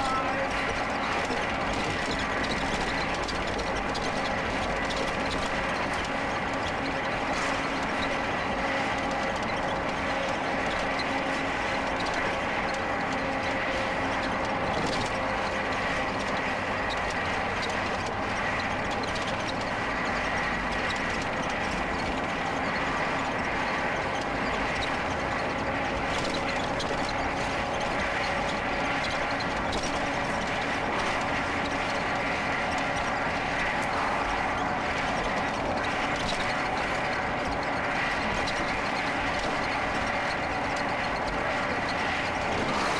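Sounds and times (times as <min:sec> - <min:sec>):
towed mower rattling on road: 0:00.0 - 0:42.9.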